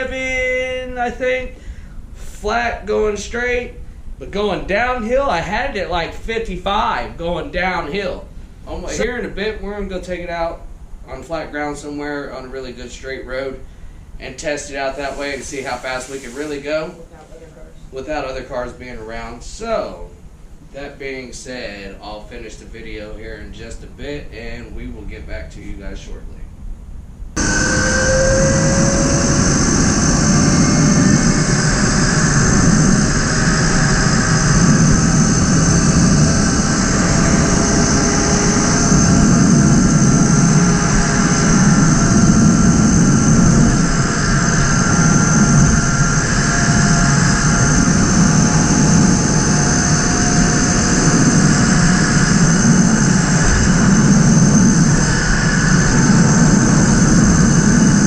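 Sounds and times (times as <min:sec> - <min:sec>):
wind rushing over microphone: 0:27.2 - 0:58.0
electric motor whine: 0:27.4 - 0:58.0.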